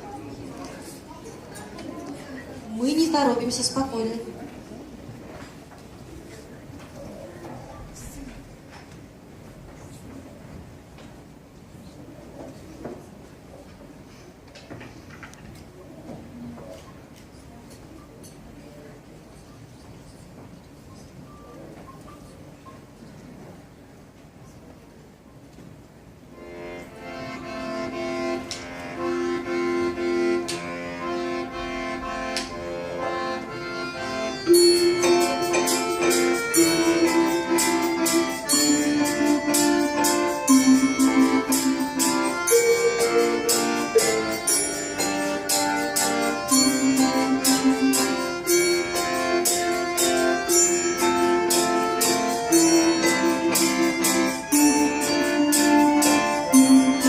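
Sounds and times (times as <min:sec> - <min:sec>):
folk ensemble playing: 0:26.4 - 0:57.0
sharp quick instrument strokes: 0:34.3 - 0:57.0.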